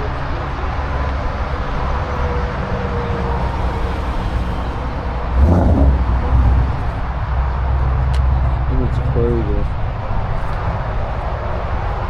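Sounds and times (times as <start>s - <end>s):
low-pitched engine swell: 3.9s - 12.0s
steady low rumble: 5.1s - 12.0s.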